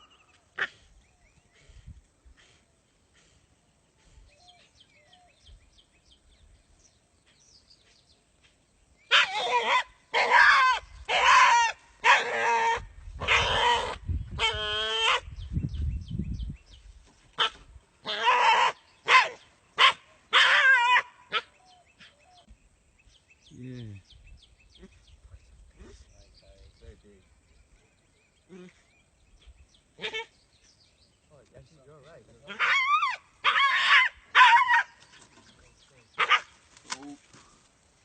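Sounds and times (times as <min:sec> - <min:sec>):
dog barking: 0:09.1 - 0:12.5, 0:18.3 - 0:21.5, 0:36.2 - 0:36.5
dog yelping: 0:09.1 - 0:15.2, 0:17.4 - 0:21.5, 0:32.5 - 0:35.0.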